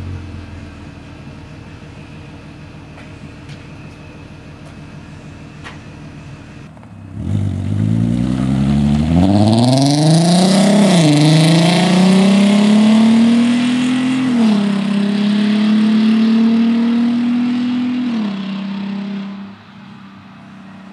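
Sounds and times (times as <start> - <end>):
car engine accelerating: 6.7 - 20.9.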